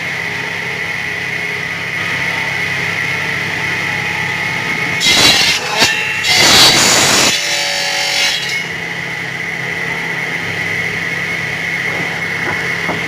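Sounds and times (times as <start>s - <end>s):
machinery whine and hum: 0.0s - 13.0s
saw cutting through wood: 5.0s - 8.8s.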